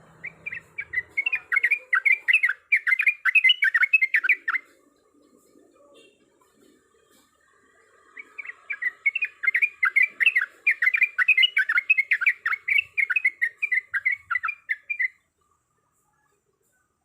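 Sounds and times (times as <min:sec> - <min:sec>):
bird chattering song: 0:00.0 - 0:06.2, 0:08.0 - 0:15.3.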